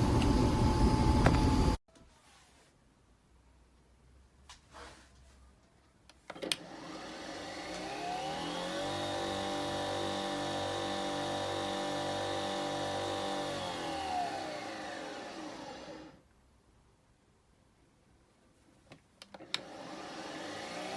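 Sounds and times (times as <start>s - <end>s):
coffee machine motor whir: 6.6s - 16.2s, 19.4s - 20.9s.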